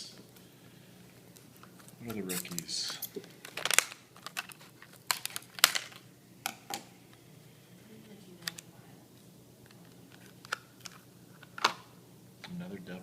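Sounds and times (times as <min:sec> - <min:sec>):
wax paper card pack crinkling: 0:01.3 - 0:06.1.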